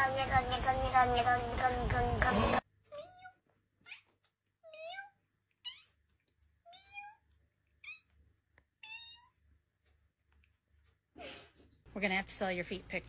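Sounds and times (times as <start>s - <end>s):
cat meowing: 2.9s - 6.0s.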